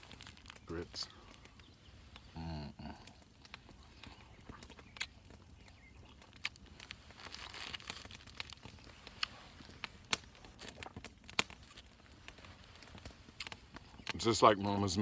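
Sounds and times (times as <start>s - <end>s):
plastic bag crinkling: 0.0s - 1.1s, 6.0s - 14.0s.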